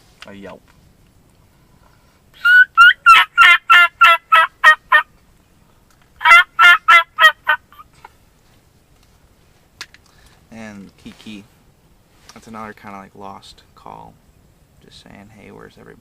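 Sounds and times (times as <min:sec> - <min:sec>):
turkey mouth call yelps: 0:02.4 - 0:05.1, 0:06.2 - 0:07.9.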